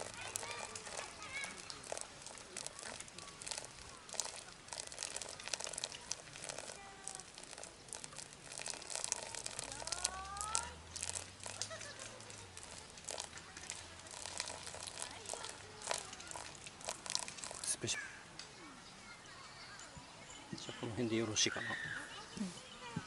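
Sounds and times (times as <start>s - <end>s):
crinkling and rustling: 0.0s - 17.9s.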